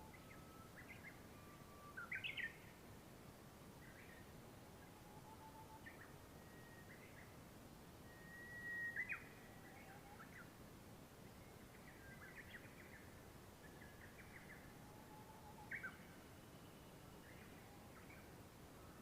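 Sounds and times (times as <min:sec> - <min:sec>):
bird whistling and chirping: 0:00.0 - 0:02.6, 0:08.1 - 0:10.4, 0:15.4 - 0:16.0
low background hiss: 0:00.0 - 0:19.0.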